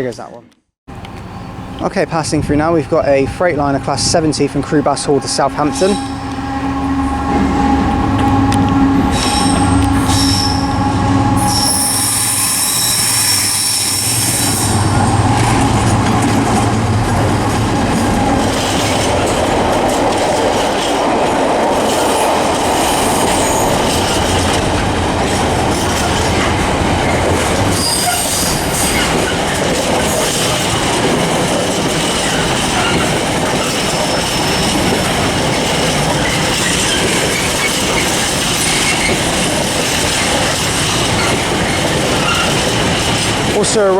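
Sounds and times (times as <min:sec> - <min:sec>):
diesel locomotive engine: 0:00.9 - 0:43.9
train wheels squealing: 0:04.2 - 0:15.6, 0:21.9 - 0:24.5, 0:27.0 - 0:30.8, 0:31.9 - 0:43.1
wheels clicking over rail joints: 0:14.0 - 0:43.9.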